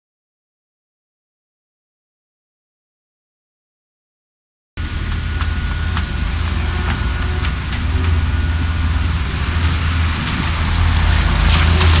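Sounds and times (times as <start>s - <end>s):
loader engine rumbling: 4.8s - 12.0s.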